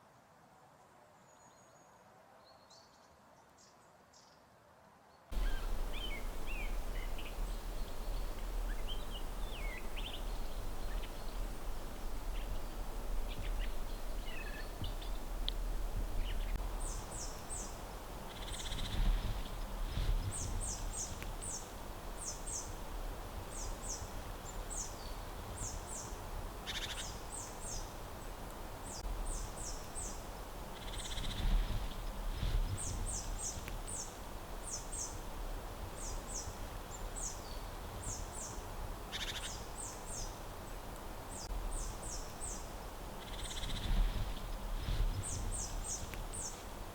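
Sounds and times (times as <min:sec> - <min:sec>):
small birds chirping: 0:05.3 - 0:46.9
steady low rumble: 0:05.4 - 0:26.6.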